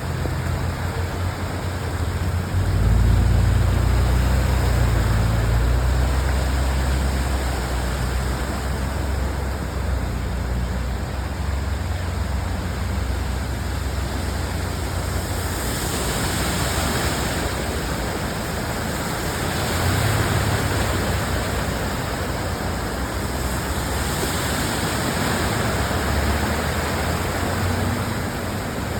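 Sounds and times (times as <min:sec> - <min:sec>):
heavy rain: 0:00.0 - 0:28.9
running floodwater: 0:00.0 - 0:28.9
vehicle engine rumble: 0:00.0 - 0:28.9.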